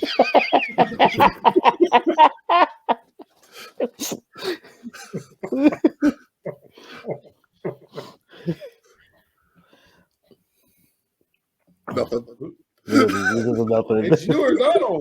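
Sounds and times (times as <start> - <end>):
people laughing: 0.0 - 8.9, 12.9 - 15.0.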